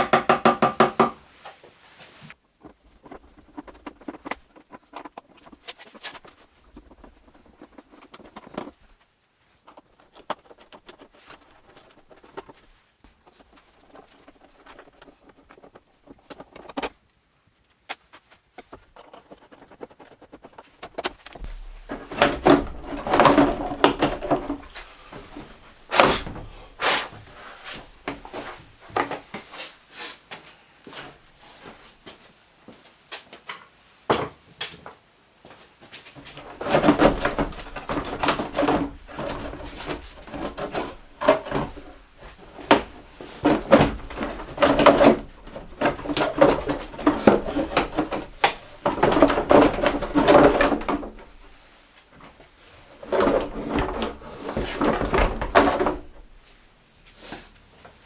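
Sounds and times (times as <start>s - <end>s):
knocks and clattering of hand work: 0.0s - 2.3s, 18.0s - 29.5s, 36.0s - 56.8s.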